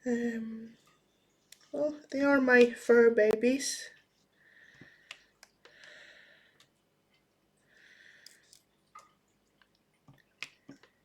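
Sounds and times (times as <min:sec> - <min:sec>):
faint breaths: 0:04.3 - 0:06.8, 0:07.6 - 0:08.7.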